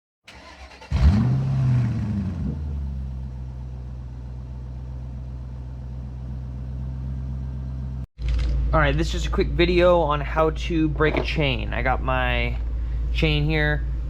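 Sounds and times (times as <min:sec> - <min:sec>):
dirt bike engine revving and idling: 0:01.0 - 0:03.0.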